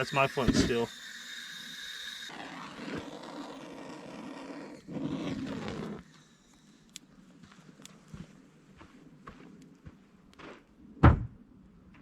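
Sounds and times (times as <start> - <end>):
lighter flame rushing: 0.0 - 7.1.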